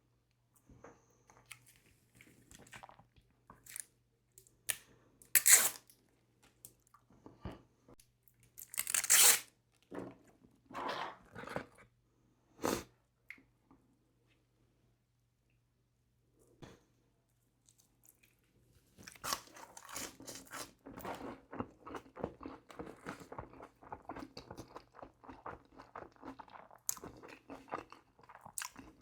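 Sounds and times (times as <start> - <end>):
crunching and chewing food: 1.2 - 3.9, 17.6 - 29.0.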